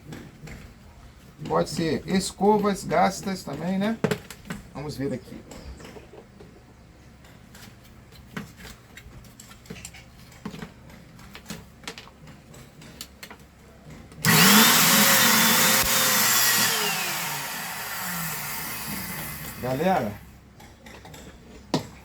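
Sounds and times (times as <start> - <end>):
electric motor whining: 14.2 - 20.2.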